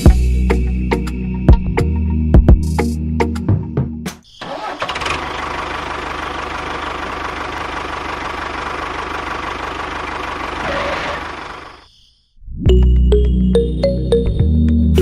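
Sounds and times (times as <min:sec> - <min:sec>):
music: 0:00.0 - 0:04.3, 0:12.4 - 0:15.0
small motor chattering: 0:10.5 - 0:11.6.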